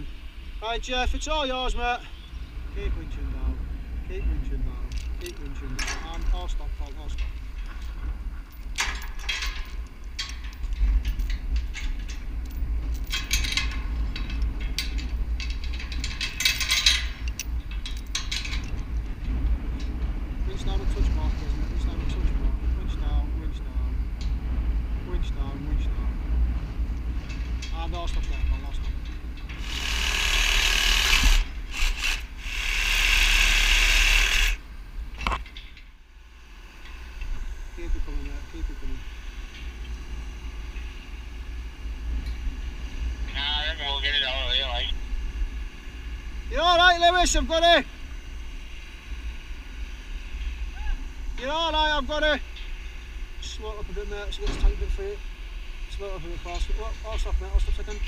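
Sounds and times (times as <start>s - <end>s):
steady low rumble: 0.0s - 58.0s
metal clinking and rattling: 4.8s - 20.1s
power tool running: 29.6s - 34.6s.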